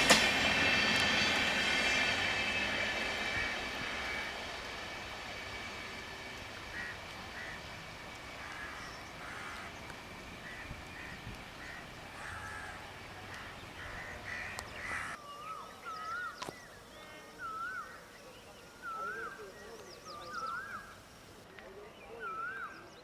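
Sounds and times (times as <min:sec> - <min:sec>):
whistled birdsong: 0:00.0 - 0:23.0
crow-like caws: 0:03.4 - 0:04.4, 0:06.7 - 0:07.7, 0:08.4 - 0:09.8, 0:10.4 - 0:15.2.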